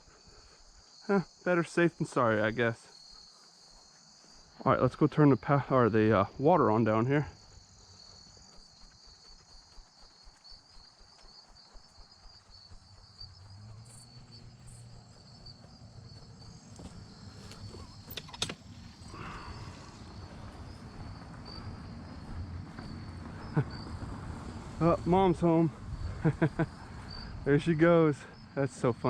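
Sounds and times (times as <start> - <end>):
crickets chirping: 0.0 - 29.0
low rumble: 12.7 - 27.6.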